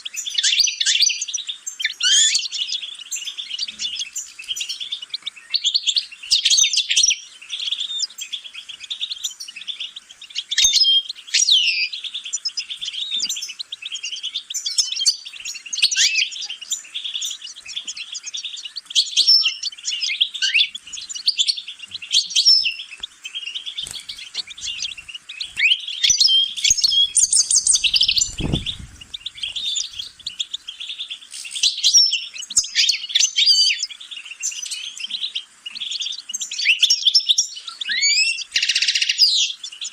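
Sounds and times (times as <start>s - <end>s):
songbird twittering song: 0.0s - 39.9s
low thump: 27.9s - 29.1s.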